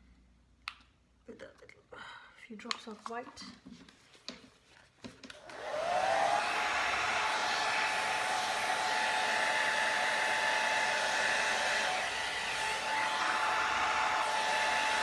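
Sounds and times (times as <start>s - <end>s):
blow dryer running: 5.4s - 15.0s.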